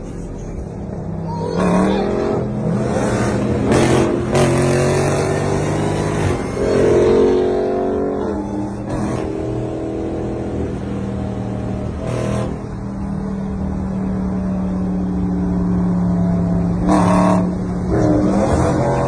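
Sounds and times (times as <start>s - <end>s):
sports car engine revving: 1.5s - 12.8s, 15.7s - 19.0s.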